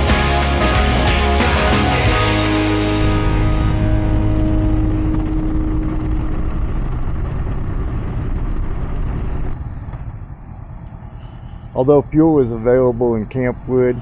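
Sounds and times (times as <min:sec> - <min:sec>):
background music: 0:00.0 - 0:06.0
motorcycle engine: 0:00.0 - 0:11.8
wind noise: 0:03.0 - 0:14.0.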